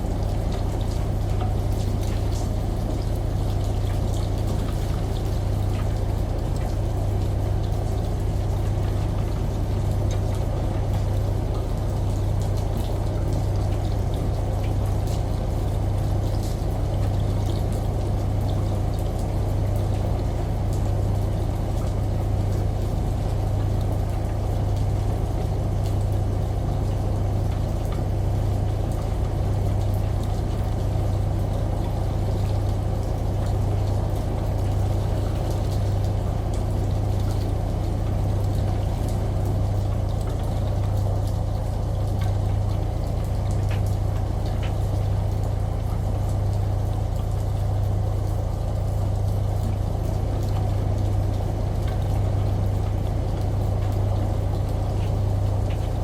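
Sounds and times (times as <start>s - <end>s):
washing machine running: 0.0s - 56.0s.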